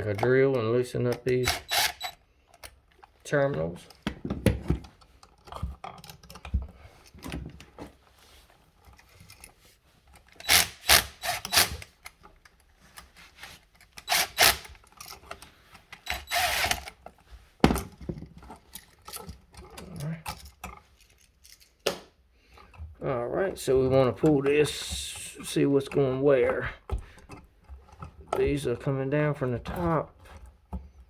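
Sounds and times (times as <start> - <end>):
handling clicks and rattles: 0.0 - 10.5, 11.4 - 22.0, 22.6 - 31.0
cordless impact driver: 1.4 - 2.2, 10.4 - 11.9, 14.0 - 14.8, 16.0 - 16.9.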